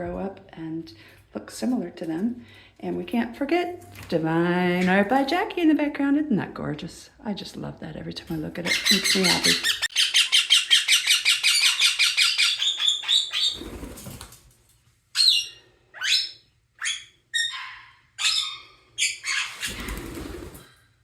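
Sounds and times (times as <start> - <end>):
parakeets chirping and squawking: 8.6 - 13.9, 15.2 - 20.6.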